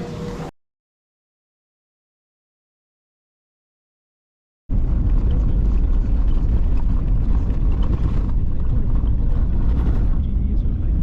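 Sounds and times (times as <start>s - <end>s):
vehicle engine and road noise: 0.0s - 0.5s, 4.7s - 11.0s.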